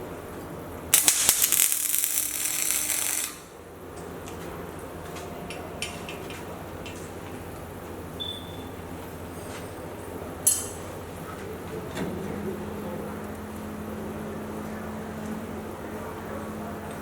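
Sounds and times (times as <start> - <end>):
welding arc crackling: 0.9 - 3.8.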